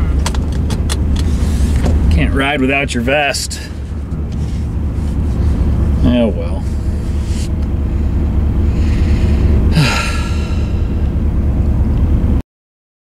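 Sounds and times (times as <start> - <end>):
van road and engine rumble: 0.0 - 12.4
person sighing: 8.7 - 11.1.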